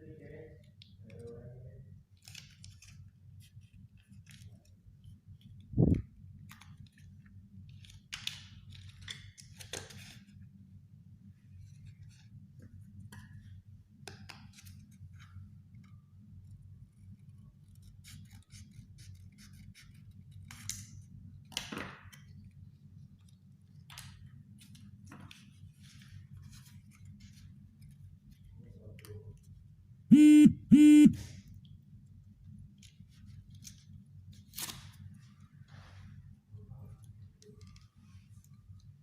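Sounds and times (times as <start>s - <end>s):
short loud beeps: 30.1s - 31.2s
steady low hum: 30.1s - 31.2s.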